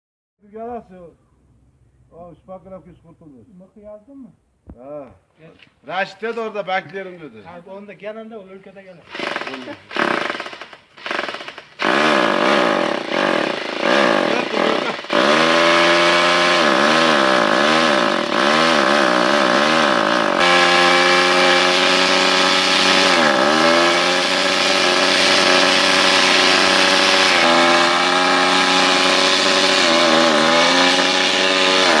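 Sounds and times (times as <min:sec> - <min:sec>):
motorcycle engine sputtering and revving: 0:09.1 - 0:32.0.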